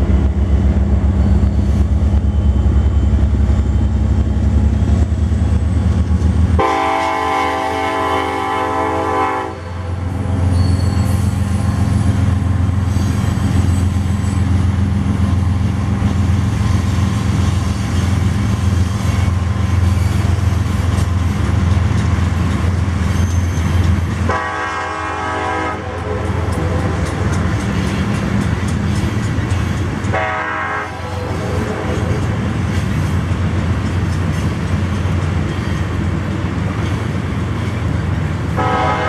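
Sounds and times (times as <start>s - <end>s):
freight train rolling rumble: 0.0s - 39.0s
locomotive horn blast: 6.6s - 10.0s, 24.2s - 27.0s, 30.1s - 32.2s, 38.6s - 39.0s.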